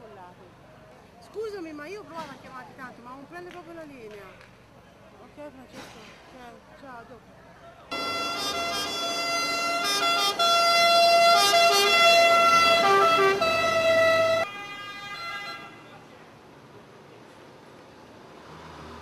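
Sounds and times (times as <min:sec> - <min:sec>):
emergency vehicle siren: 0:07.9 - 0:15.7.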